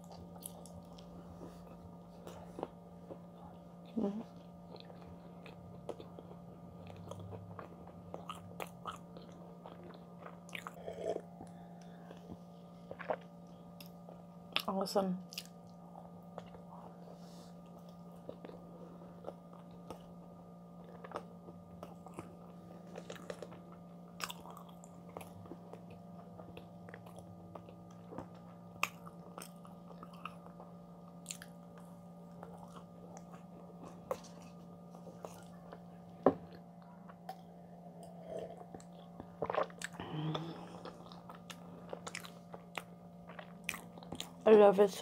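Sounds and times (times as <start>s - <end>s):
chewing with wet mouth clicks: 0.0s - 1.1s, 4.4s - 12.0s, 15.3s - 16.6s, 17.7s - 18.6s, 20.8s - 44.4s
steady low hum: 0.0s - 45.0s.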